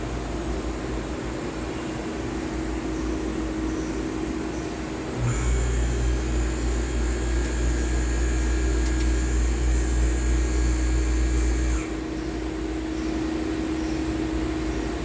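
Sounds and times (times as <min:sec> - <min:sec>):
high machine whine: 0:00.0 - 0:15.0
lathe machine hum: 0:04.7 - 0:15.0.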